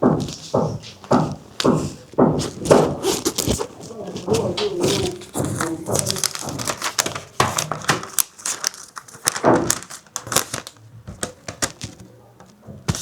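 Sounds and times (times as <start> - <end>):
crinkling and crackling: 0.0 - 13.0.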